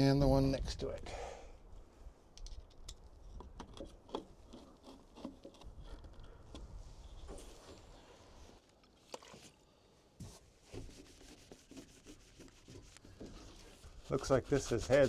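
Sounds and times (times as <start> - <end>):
screw clicking and scraping in plastic: 2.4 - 6.7.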